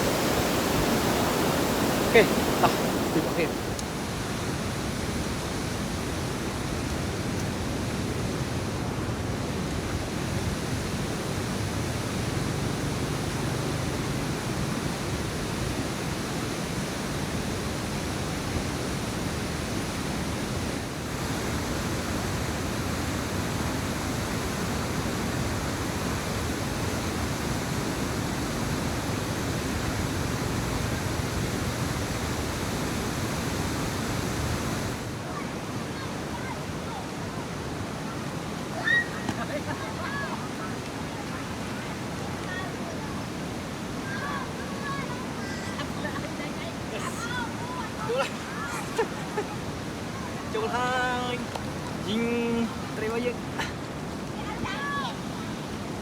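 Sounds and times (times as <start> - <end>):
steady rushing noise: 0.0 - 6.7.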